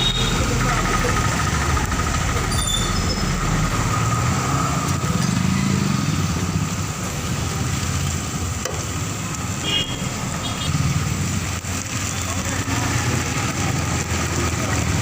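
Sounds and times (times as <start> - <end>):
car engines: 0.0 - 15.0
motorcycles running: 0.0 - 15.0.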